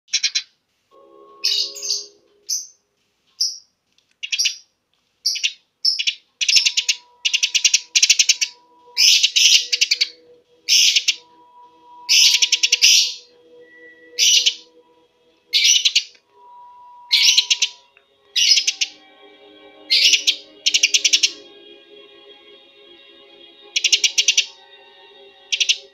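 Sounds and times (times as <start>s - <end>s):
sparrow chirping rapidly: 0.1s - 0.5s, 4.2s - 4.6s, 5.3s - 11.2s, 12.1s - 13.2s, 14.2s - 14.6s, 15.6s - 16.1s, 17.2s - 17.8s, 18.4s - 18.9s.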